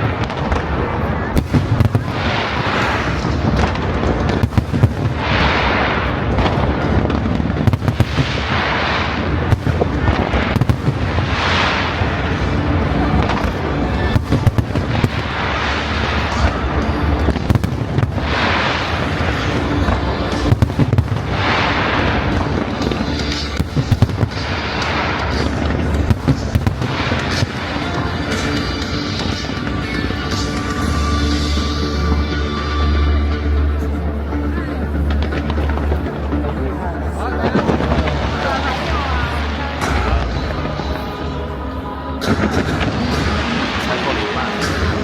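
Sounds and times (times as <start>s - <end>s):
fireworks bursts and bangs: 0.0s - 32.3s, 34.8s - 45.0s
deep rumble: 0.0s - 45.0s.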